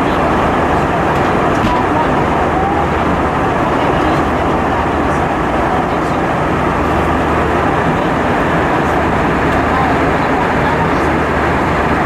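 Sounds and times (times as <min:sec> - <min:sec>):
airplane cabin engine noise: 0:00.0 - 0:12.0.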